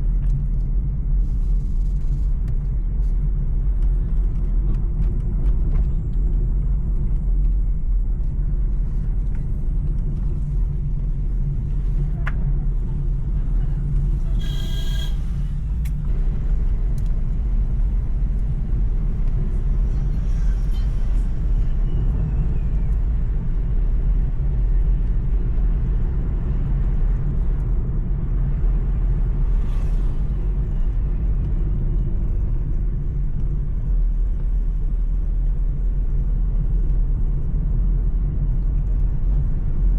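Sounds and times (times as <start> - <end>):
vehicle rumbling: 0.0 - 39.9
brief pitched tone: 14.3 - 15.3.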